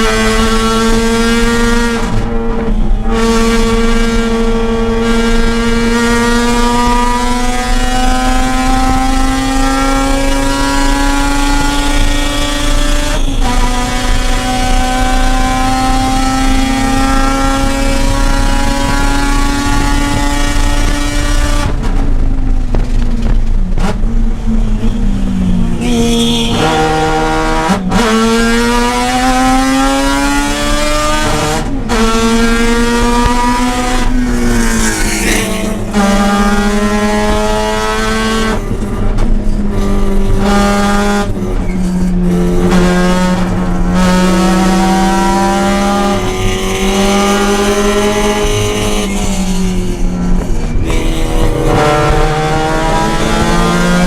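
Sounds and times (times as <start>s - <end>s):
rotary engine revving: 25.4s - 54.0s.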